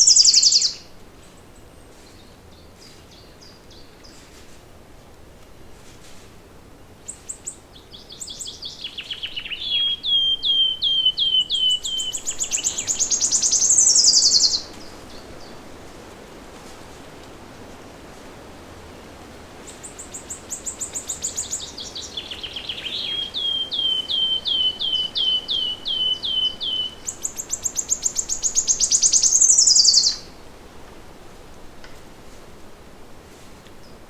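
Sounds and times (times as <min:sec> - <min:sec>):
songbird singing: 0:00.0 - 0:04.3, 0:07.0 - 0:15.8, 0:19.6 - 0:30.5
faint outdoor hiss: 0:00.0 - 0:34.0.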